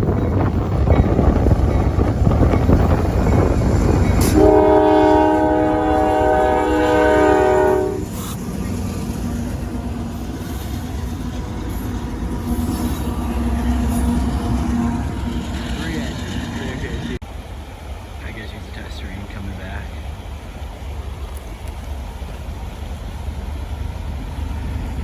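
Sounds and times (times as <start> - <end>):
locomotive air horn blast: 4.2 - 8.4.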